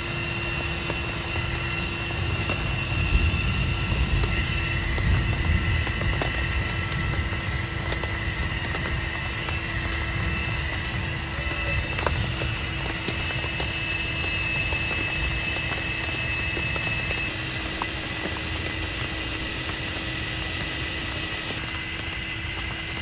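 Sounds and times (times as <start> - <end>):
faint steady high tones: 0.0 - 22.9
deep wavering low rumble: 2.2 - 13.3
heavy rain falling: 3.2 - 8.0.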